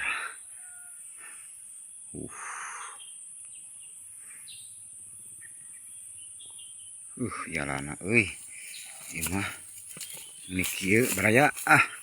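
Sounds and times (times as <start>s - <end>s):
faint bird chirps: 1.8s - 7.6s
high insect drone: 7.7s - 12.0s
brief rustle: 8.6s - 11.7s.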